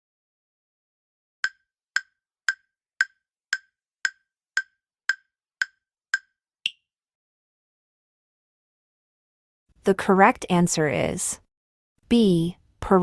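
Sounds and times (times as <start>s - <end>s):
woody countdown ticks: 1.4s - 6.8s.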